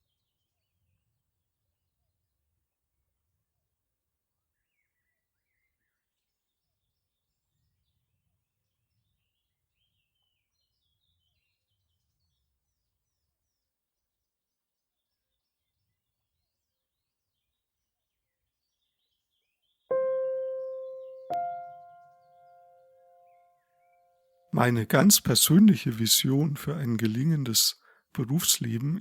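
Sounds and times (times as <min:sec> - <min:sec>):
faint birds chirping: 0:14.8 - 0:29.0.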